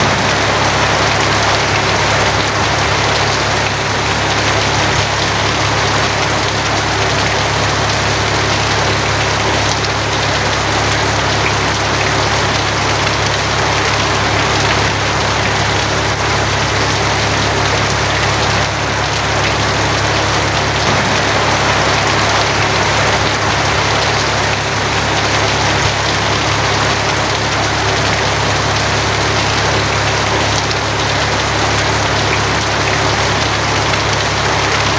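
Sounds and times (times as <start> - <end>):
low rumble: 0.0 - 3.3, 20.0 - 25.9
heavy rain on a tin roof: 0.0 - 34.9.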